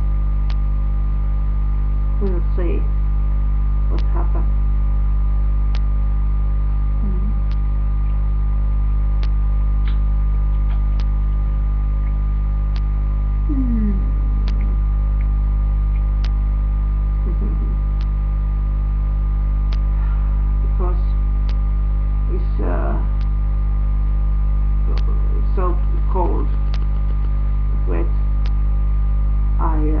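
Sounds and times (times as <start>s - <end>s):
electrical mains hum: 0.0s - 30.0s.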